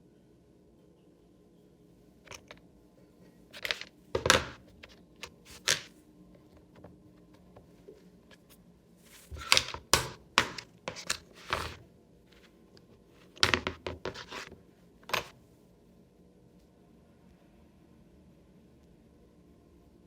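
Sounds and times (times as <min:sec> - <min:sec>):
hard parts knocking and scraping: 0:02.3 - 0:02.6, 0:03.6 - 0:05.9, 0:09.1 - 0:11.8, 0:13.2 - 0:15.3.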